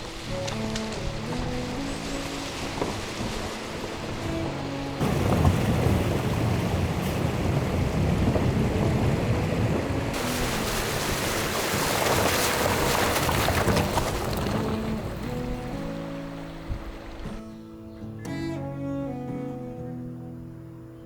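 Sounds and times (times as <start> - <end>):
wind buffeting microphone: 0.0 - 17.5.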